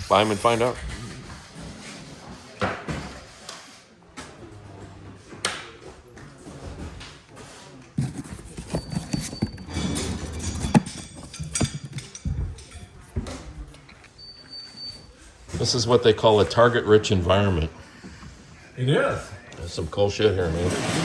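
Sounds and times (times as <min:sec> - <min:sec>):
knocking and clattering: 0:08.0 - 0:13.2.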